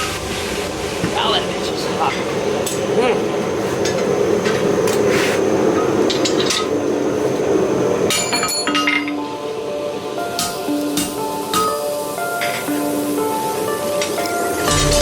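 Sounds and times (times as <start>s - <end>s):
music: 8.1s - 15.0s.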